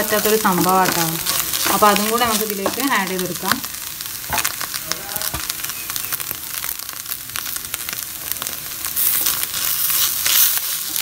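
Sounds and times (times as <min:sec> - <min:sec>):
wooden spatula stirring and scraping: 0:00.0 - 0:03.6
chicken sizzling in a frying pan: 0:00.0 - 0:11.0.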